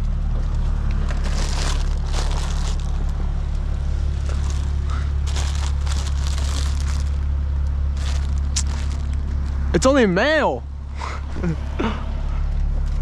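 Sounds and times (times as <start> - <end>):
car engine idling: 0.0 - 13.0
mail crinkling and rustling: 1.0 - 3.2, 4.2 - 7.3, 7.9 - 9.3.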